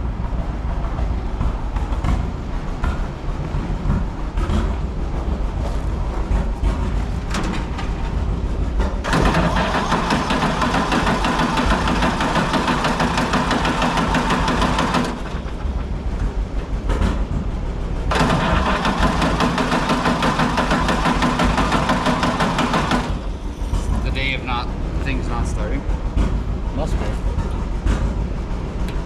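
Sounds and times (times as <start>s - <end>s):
tractor engine revving: 9.0s - 15.6s, 18.1s - 23.9s.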